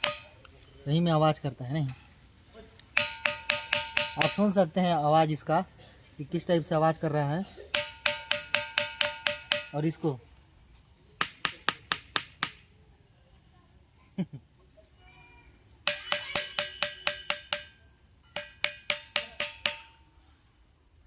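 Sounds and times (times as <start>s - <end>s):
ringing rock being struck: 0.0s - 0.4s, 3.0s - 4.6s, 7.7s - 9.8s, 15.9s - 20.0s.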